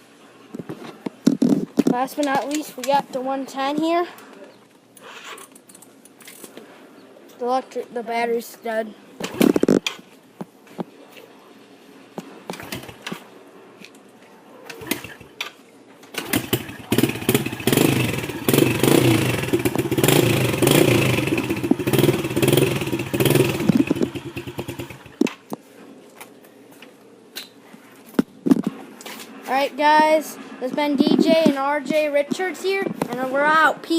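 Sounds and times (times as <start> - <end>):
dirt bike engine running: 16.2 - 25.3.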